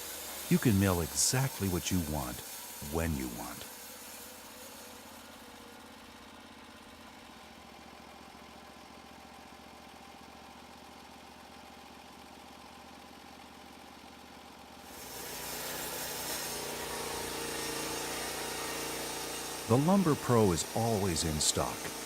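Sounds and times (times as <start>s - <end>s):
sawmill engine idling: 0.0s - 7.2s, 15.0s - 22.0s.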